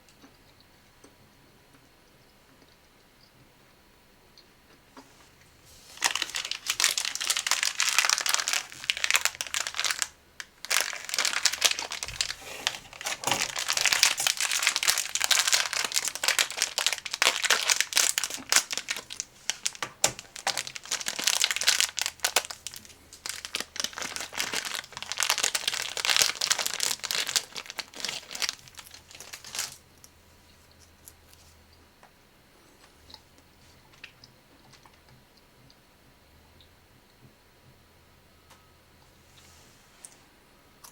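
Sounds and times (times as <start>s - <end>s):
snack packaging crinkling: 5.8s - 30.2s.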